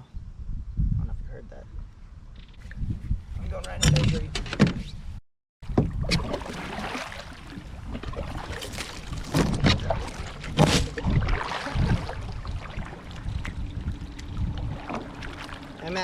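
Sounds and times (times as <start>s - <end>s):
wind on microphone: 0.0s - 16.0s
water splashing against kayak: 5.6s - 16.0s.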